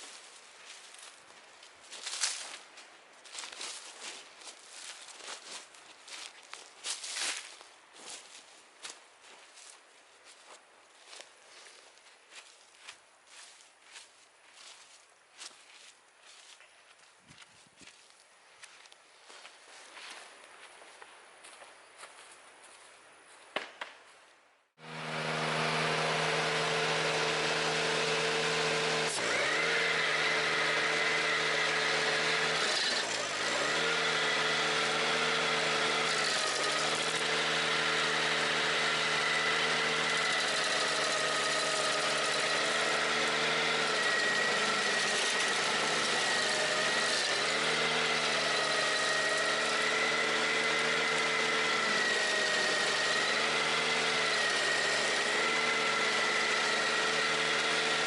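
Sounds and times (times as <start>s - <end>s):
stump grinder: 0.0s - 16.6s, 24.8s - 58.0s
tractor engine running at high speed: 24.8s - 58.0s.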